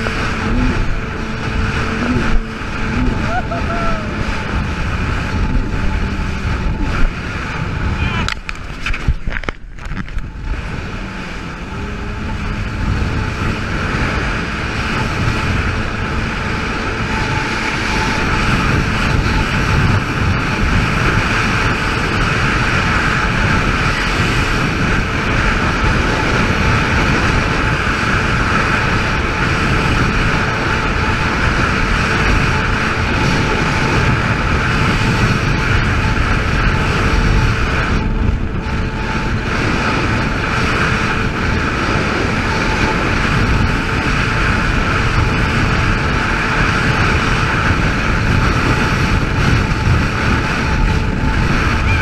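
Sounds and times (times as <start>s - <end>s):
jet ski engine droning: 0.0s - 52.0s.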